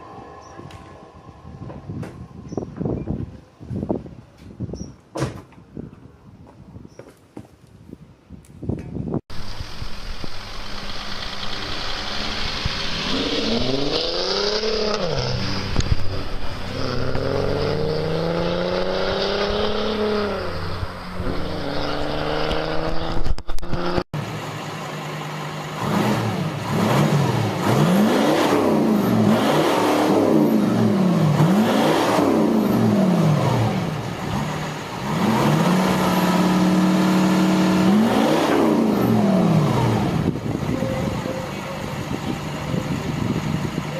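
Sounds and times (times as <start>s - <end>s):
diesel car engines revving: 9.4s - 43.9s.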